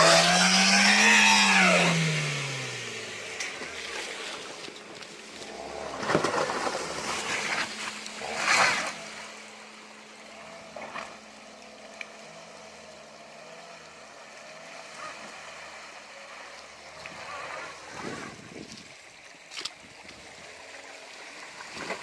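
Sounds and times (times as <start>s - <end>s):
car engine running: 0.0s - 22.0s
water splashing: 2.8s - 12.1s, 14.4s - 22.0s.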